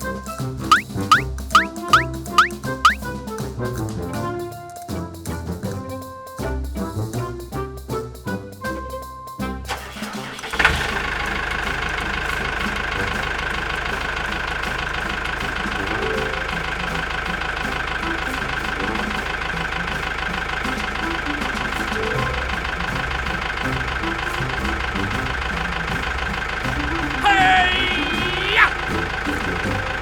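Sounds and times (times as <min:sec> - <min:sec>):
small tractor engine putter: 0:09.7 - 0:27.3, 0:28.0 - 0:30.0.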